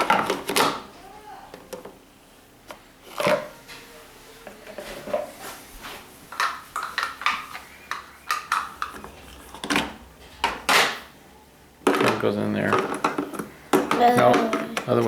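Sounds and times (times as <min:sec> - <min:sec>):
plastic parts clicking and clattering: 0:11.8 - 0:15.0.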